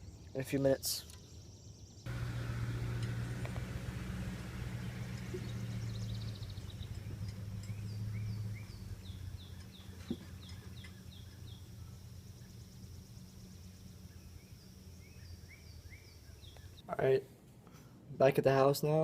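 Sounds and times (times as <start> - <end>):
low steady hum: 2.1 - 17.8
bird singing whistled notes: 4.7 - 16.8.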